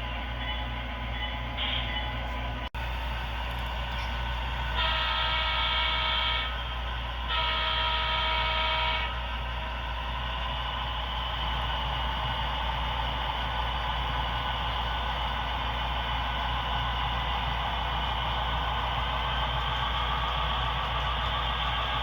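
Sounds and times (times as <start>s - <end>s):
model locomotive horn blasts: 1.2s - 2.3s, 4.0s - 9.5s.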